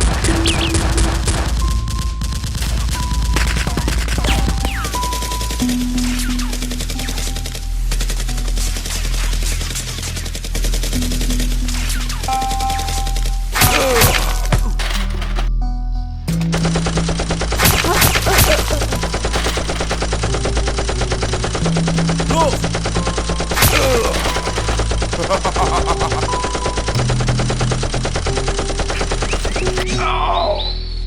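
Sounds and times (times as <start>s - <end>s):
rapid machine-gun fire: 0.0s - 15.5s, 16.4s - 29.9s.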